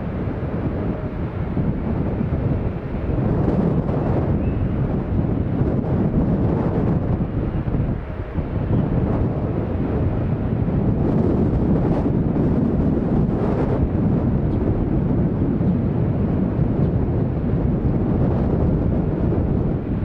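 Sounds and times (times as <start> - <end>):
jet engines rumbling: 0.0 - 20.0
wind buffeting microphone: 0.0 - 20.0.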